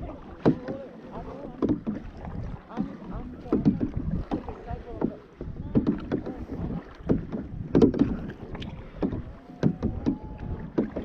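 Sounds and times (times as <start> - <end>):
paddles splashing in water: 0.0 - 11.0
wind rumble on microphone: 0.0 - 11.0
sharp knocks: 7.0 - 8.3.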